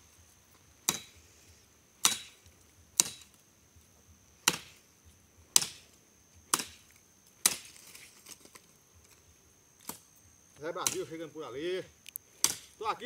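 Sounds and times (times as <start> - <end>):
wood being chopped: 0.8 - 1.2, 2.0 - 3.4, 4.4 - 4.8, 5.5 - 8.0, 10.8 - 11.1, 12.4 - 12.8.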